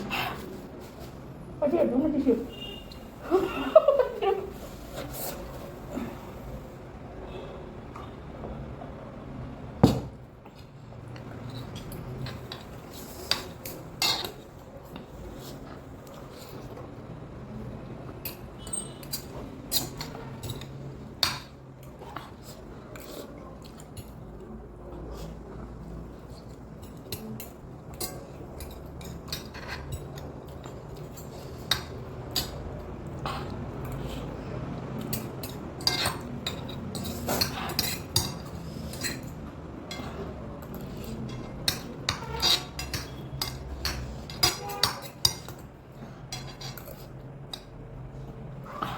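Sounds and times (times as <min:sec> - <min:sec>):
utensils clinking against a bowl: 0:09.8 - 0:16.9, 0:18.1 - 0:48.3.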